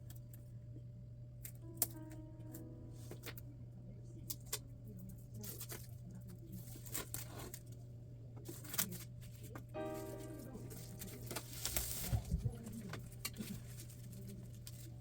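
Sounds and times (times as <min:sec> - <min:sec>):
steady low hum: 0:00.0 - 0:15.0
plastic crinkles and scratches: 0:04.3 - 0:15.0
sticker peeling off plastic wrap: 0:10.7 - 0:15.0.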